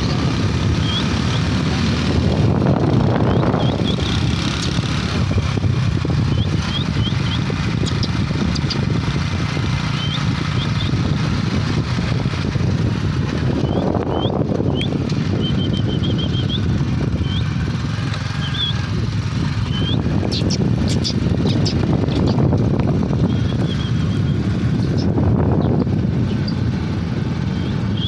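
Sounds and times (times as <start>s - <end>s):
motorcycle engine running: 0.0s - 28.0s
wind rumble on microphone: 0.0s - 28.0s
bird chirping: 6.2s - 8.9s, 9.8s - 11.0s, 13.6s - 17.5s, 18.3s - 18.8s, 19.6s - 22.4s, 23.2s - 26.6s.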